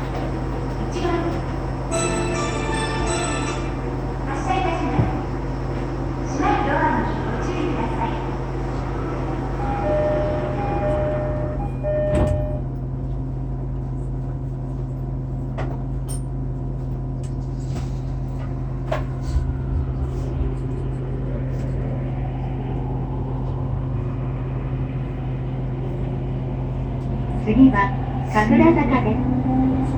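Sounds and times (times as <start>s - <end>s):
train motor hum: 0.0s - 12.9s, 17.2s - 29.9s
faint rising whine: 18.5s - 27.3s.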